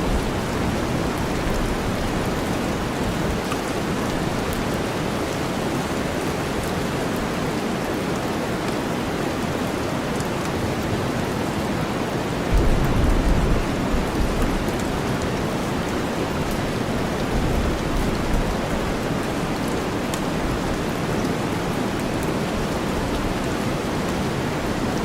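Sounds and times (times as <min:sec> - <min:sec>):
steady rain: 0:00.0 - 0:25.0.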